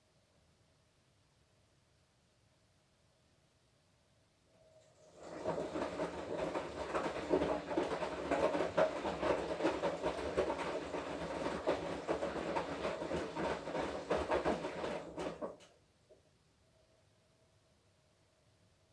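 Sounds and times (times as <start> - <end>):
washing machine drum tumbling laundry: 5.0 - 15.7.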